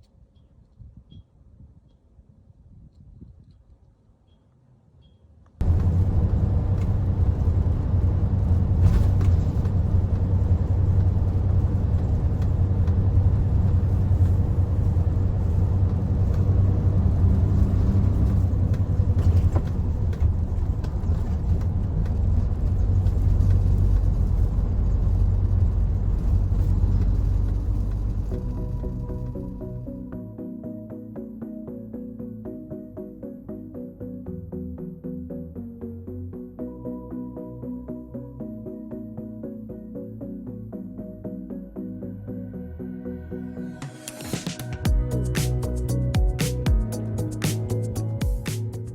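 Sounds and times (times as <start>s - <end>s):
heavy truck engine rumble: 5.6s - 30.1s.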